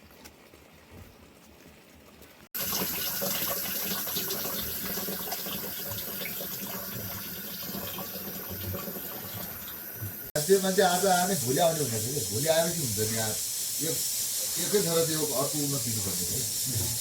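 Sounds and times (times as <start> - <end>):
water pouring splashing: 2.6 - 10.3.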